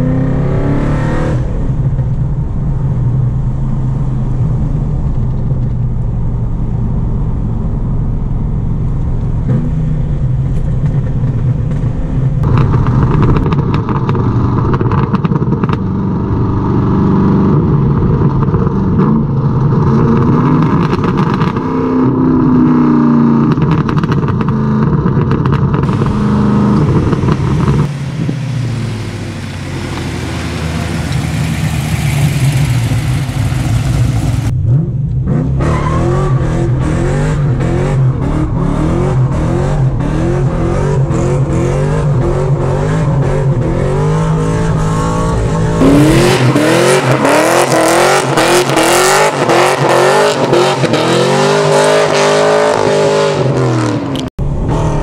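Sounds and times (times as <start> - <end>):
engine revving: 0.0 - 1.8, 12.4 - 55.0
engine running under load: 25.8 - 34.8.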